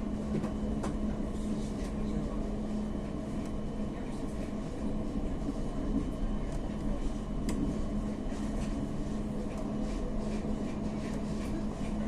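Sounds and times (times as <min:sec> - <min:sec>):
train carriage rumble and hum: 0:00.0 - 0:12.0.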